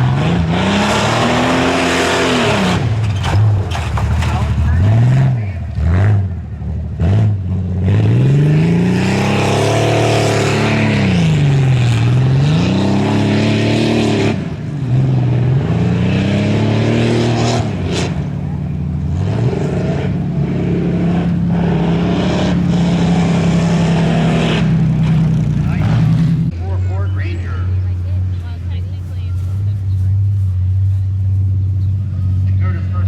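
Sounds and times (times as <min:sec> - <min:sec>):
truck engine revving: 0:00.0 - 0:33.0.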